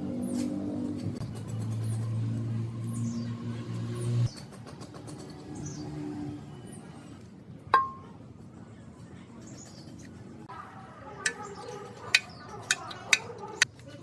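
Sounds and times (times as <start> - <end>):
metal tools clicking and tapping: 11.3 - 13.8.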